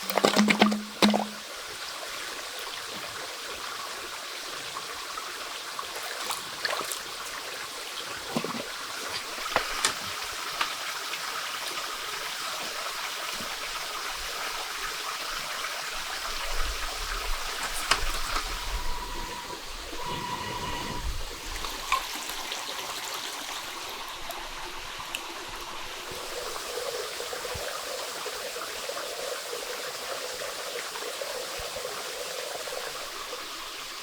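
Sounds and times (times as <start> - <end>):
stream water rushing: 0.0 - 1.6.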